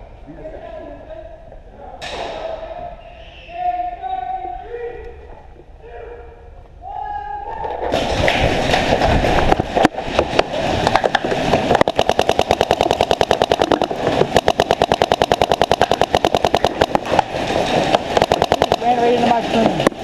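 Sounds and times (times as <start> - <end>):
paintball markers firing: 11.7 - 20.0.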